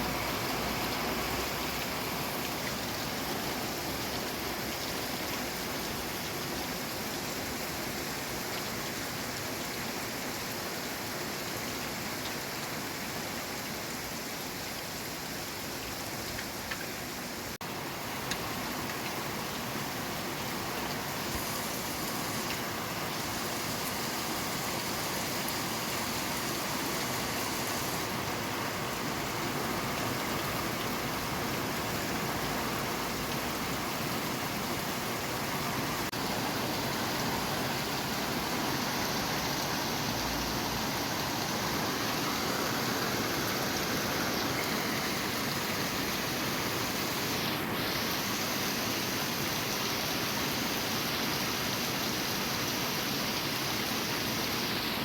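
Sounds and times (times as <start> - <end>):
steady rain falling: 0.0 - 55.0
raindrop ticks: 16.2 - 17.0, 18.2 - 19.7.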